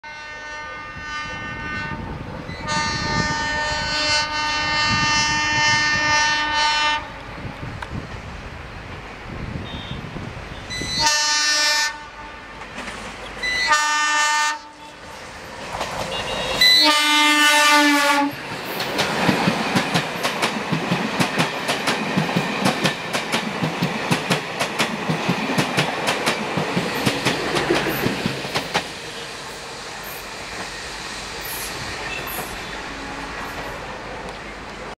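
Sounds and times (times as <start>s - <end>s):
train horn blasts: 0.0s - 7.4s, 9.6s - 12.6s, 13.4s - 15.1s, 16.0s - 18.4s, 32.0s - 33.8s
train wheels clacking over rail joints: 12.5s - 13.6s, 15.2s - 16.6s, 18.3s - 29.2s, 30.0s - 32.7s.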